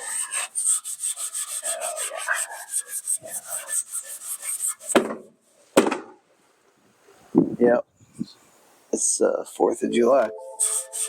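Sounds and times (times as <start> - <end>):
wire brush scrubbing metal: 0.0 - 5.0, 9.5 - 11.0
loud knocks: 4.9 - 6.2.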